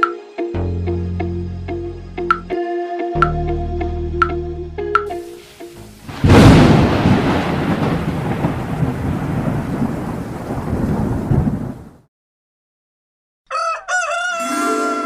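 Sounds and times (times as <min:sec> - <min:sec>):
heavy rain: 0:05.2 - 0:12.0
rolling thunder: 0:06.1 - 0:12.1
thunderclap: 0:06.1 - 0:12.1.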